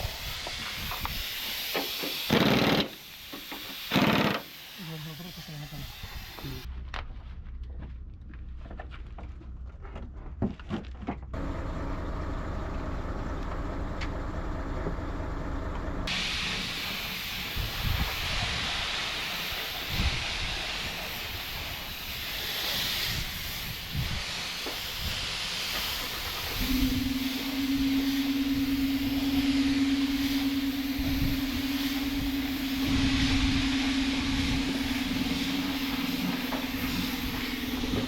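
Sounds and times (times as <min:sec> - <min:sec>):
steady hiss: 0:00.0 - 0:06.7, 0:16.1 - 0:38.0
low mechanical hum: 0:11.2 - 0:16.1, 0:26.5 - 0:38.0.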